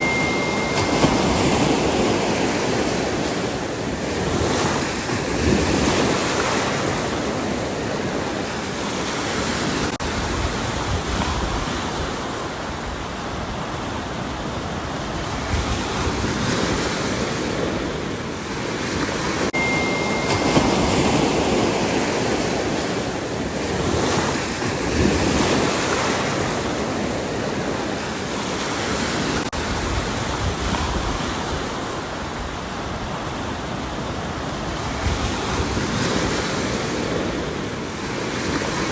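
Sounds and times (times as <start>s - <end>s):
faint high tone: 0.0s - 3.0s, 19.6s - 21.7s
waves breaking: 0.0s - 38.9s
wind rumble on microphone: 0.0s - 38.9s.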